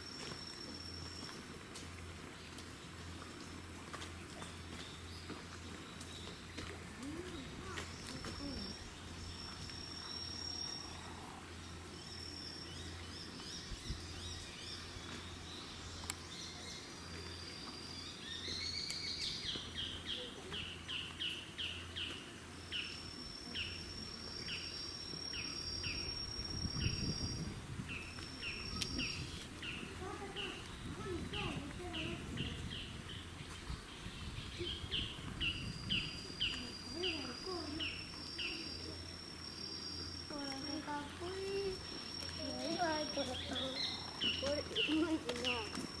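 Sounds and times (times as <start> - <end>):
insects high thin tones: 7.9 - 11.4, 35.6 - 46.0.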